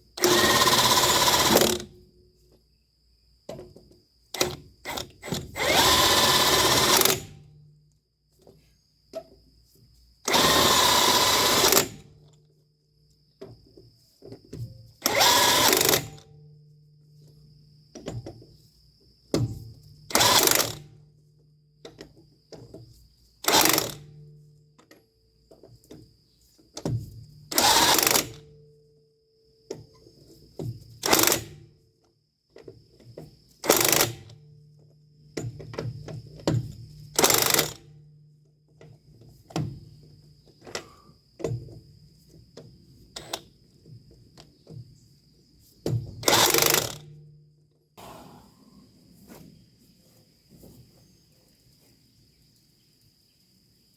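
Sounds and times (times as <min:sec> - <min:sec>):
power tool bursts: 0:00.2 - 0:01.9, 0:04.4 - 0:07.4, 0:10.3 - 0:12.0, 0:15.0 - 0:16.2, 0:20.1 - 0:20.9, 0:23.4 - 0:24.1, 0:27.5 - 0:28.4, 0:31.0 - 0:31.6, 0:33.6 - 0:34.3, 0:37.2 - 0:37.8, 0:46.2 - 0:47.0.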